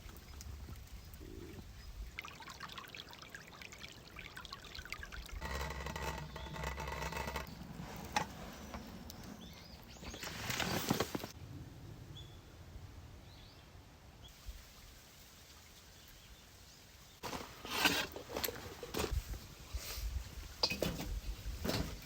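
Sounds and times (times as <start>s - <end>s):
liquid being poured: 2.1s - 5.4s
handling noises: 5.6s - 11.3s, 17.2s - 19.4s.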